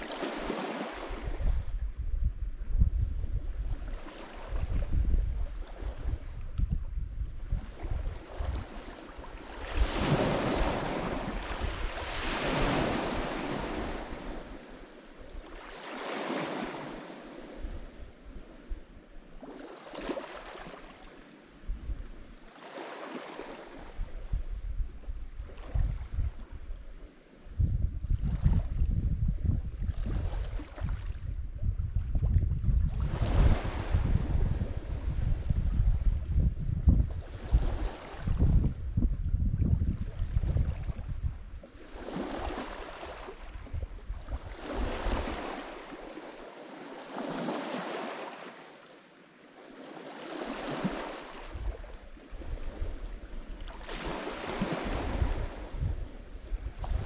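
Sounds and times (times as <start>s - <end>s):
waves washing on shore: 0.0s - 1.8s, 3.6s - 6.4s, 7.5s - 24.4s, 37.1s - 38.5s, 41.7s - 57.0s
wind buffeting microphone: 0.0s - 14.6s, 21.6s - 22.3s, 23.8s - 46.0s, 50.6s - 57.0s.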